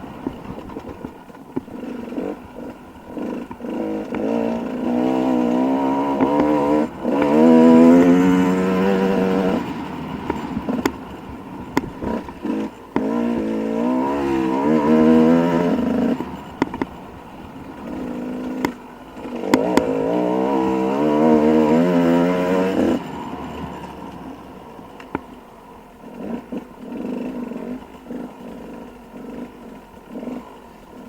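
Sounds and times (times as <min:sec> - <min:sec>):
dirt bike engine revving: 0:00.0 - 0:31.0
sharp clicks and clatter: 0:00.1 - 0:20.1.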